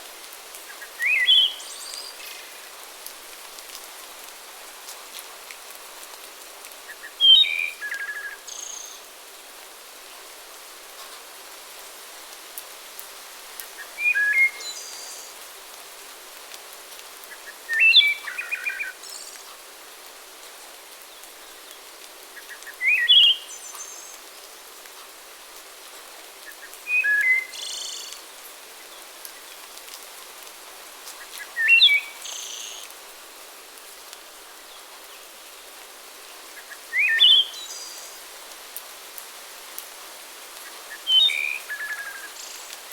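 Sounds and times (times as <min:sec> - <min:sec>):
songbird singing: 0:00.7 - 0:02.7, 0:06.9 - 0:09.1, 0:13.8 - 0:15.3, 0:17.3 - 0:19.6, 0:21.1 - 0:24.4, 0:26.4 - 0:29.9, 0:31.2 - 0:32.9, 0:34.7 - 0:38.2, 0:40.6 - 0:42.8.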